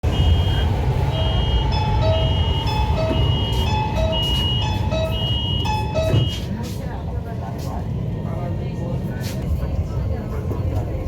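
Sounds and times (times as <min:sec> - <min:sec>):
metro train rumble: 0:00.0 - 0:11.0
electronic chime melody: 0:01.2 - 0:06.3.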